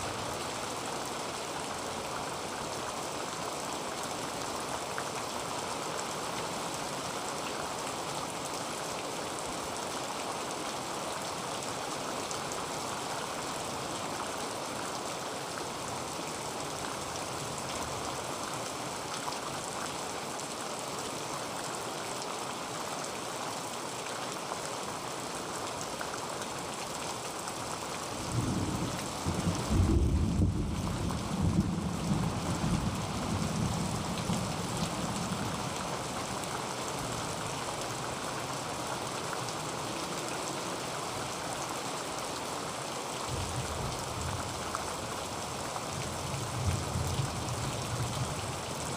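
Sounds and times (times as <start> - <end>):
heavy rain on a tin roof: 0.0 - 48.9
thunder rumbling: 28.3 - 33.0.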